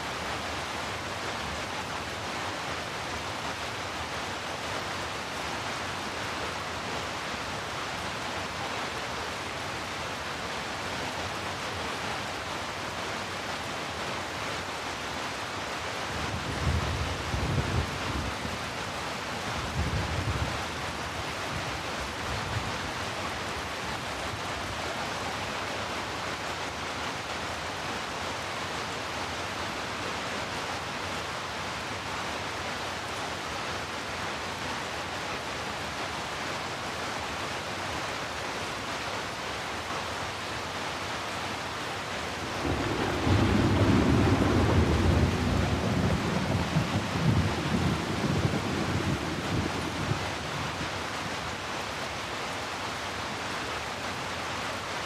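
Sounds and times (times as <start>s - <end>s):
steady rain hiss: 0.0s - 55.0s
rolling thunder rumble: 42.3s - 50.8s.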